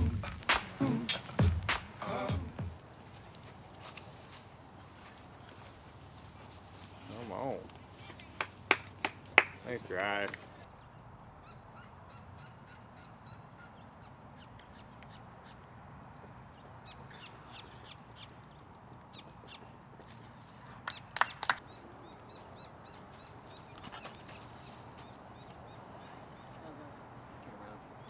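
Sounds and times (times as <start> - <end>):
sharp cracks: 0.0 - 2.5, 8.2 - 10.4, 20.8 - 21.6
birds chirping: 0.0 - 28.0.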